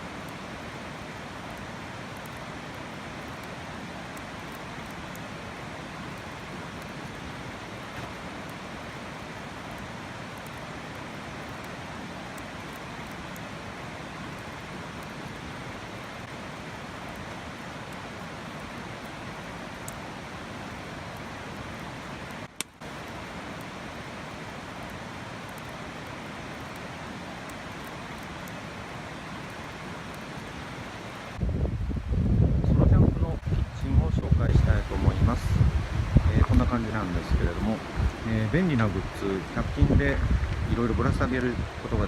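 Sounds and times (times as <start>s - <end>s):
river water rushing: 0.0s - 31.4s.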